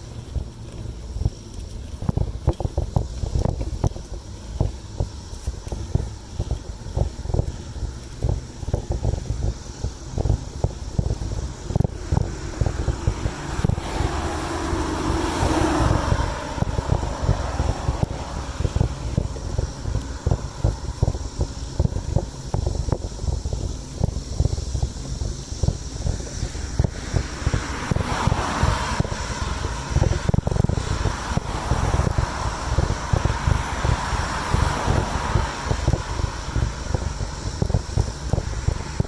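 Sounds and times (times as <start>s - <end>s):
wind buffeting microphone: 0.0s - 39.0s
rushing sound: 10.2s - 21.4s, 25.4s - 39.0s.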